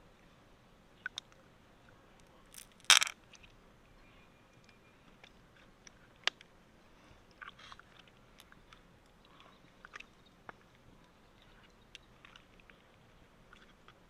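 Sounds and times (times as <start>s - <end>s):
shell cracking: 2.6s - 3.2s
shell scraping: 2.6s - 3.2s.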